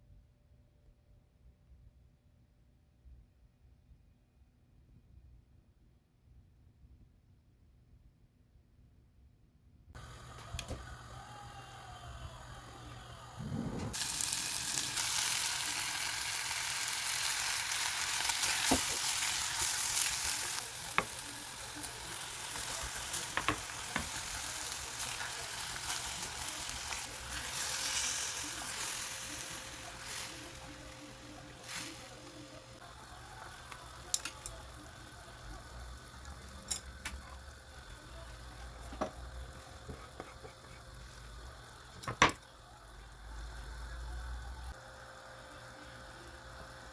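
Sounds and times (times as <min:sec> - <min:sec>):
food sizzling in a frying pan: 0:10.0 - 0:46.9.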